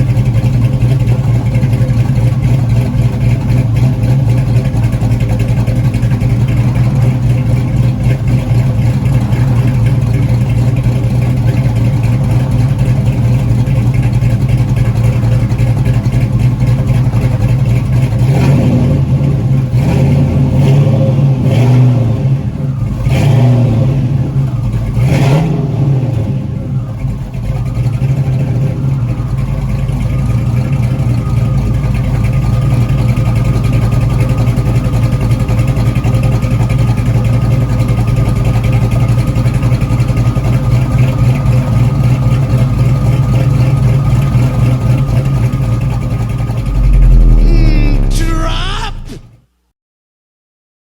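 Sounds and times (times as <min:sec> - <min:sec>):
car engine idling with lumpy lope: 0:00.0 - 0:21.4, 0:22.0 - 0:49.0
engine throttle blips: 0:45.9 - 0:48.2.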